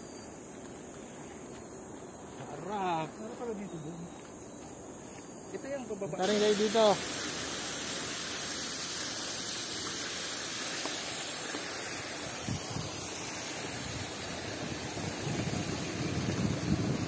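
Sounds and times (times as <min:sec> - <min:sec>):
wind hiss on microphone: 0:06.2 - 0:17.0
gusty wind buffeting: 0:12.4 - 0:17.0.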